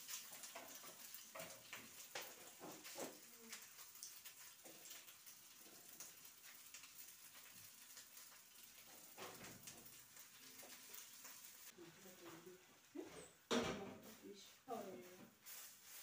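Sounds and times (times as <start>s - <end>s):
burger sizzling in pan: 0.0s - 11.8s, 15.3s - 16.0s.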